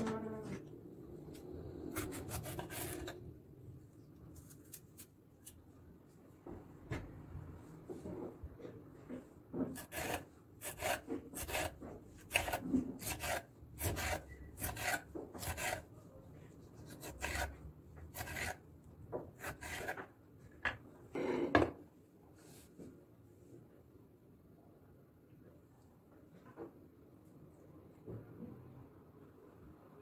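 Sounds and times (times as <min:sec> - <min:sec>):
scraping strokes: 0:01.9 - 0:03.2, 0:09.6 - 0:15.9, 0:16.9 - 0:18.6.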